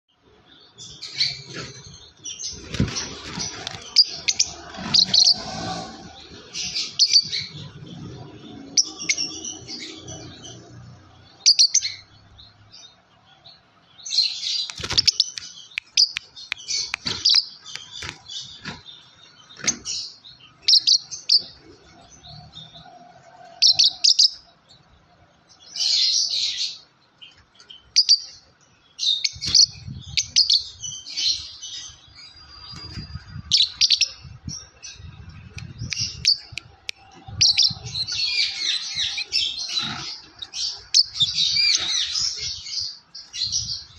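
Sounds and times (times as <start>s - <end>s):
bird chirping: 0.1s - 43.9s.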